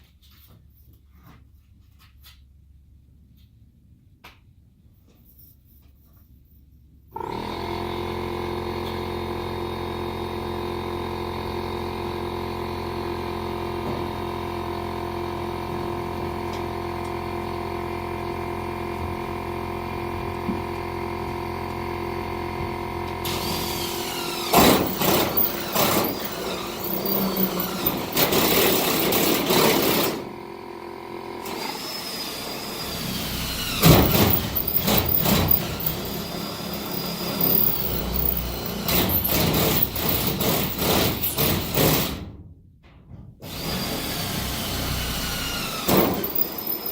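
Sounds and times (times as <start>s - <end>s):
power drill motor whine: 7.2s - 41.8s, 43.4s - 46.9s
drill bit grinding with squeals: 23.3s - 30.2s, 31.4s - 41.8s, 43.5s - 46.9s.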